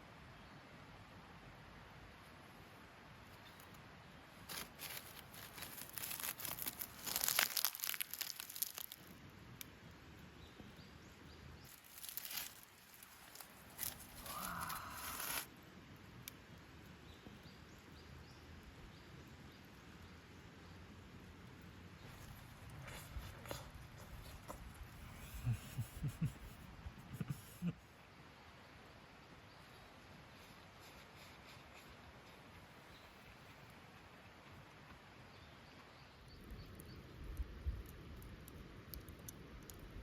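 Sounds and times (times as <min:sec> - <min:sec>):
crinkling and tearing: 0:04.4 - 0:09.1, 0:11.7 - 0:15.5.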